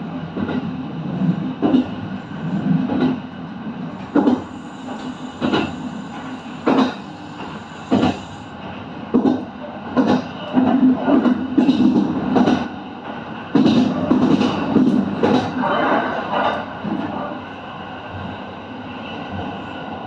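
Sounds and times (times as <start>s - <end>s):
low train running hum: 0.0s - 20.0s
train wheels knocking over rail joints: 4.1s - 8.3s.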